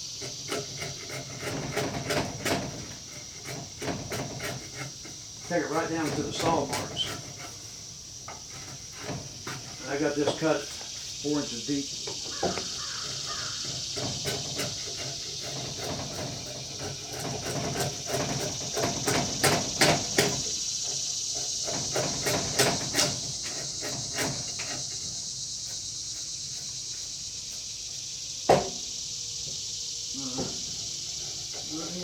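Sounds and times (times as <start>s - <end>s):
hatchet chopping wood: 0.2s - 5.2s.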